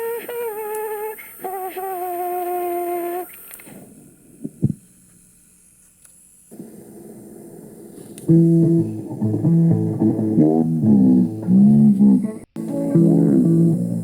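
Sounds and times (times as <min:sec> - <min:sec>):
click: 0:03.2 - 0:03.8, 0:05.8 - 0:06.2, 0:08.0 - 0:08.3
plucked guitar and bass: 0:08.3 - 0:14.0.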